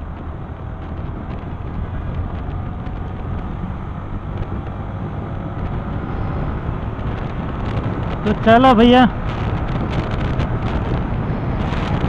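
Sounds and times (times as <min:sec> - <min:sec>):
motorcycle engine running: 0:00.0 - 0:08.5
wind rushing over microphone: 0:00.0 - 0:12.0.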